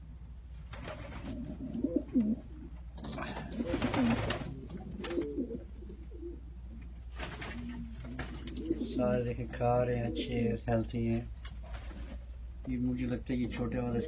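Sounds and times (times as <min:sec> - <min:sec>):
pigeons cooing: 0:00.8 - 0:10.7.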